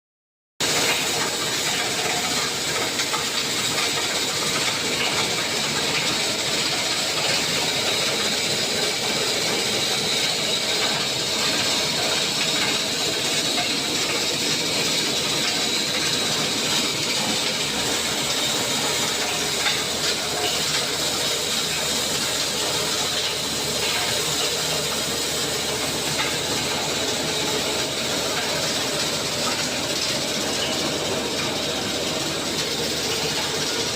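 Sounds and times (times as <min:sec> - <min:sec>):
concrete mixer running: 0:00.6 - 0:33.9.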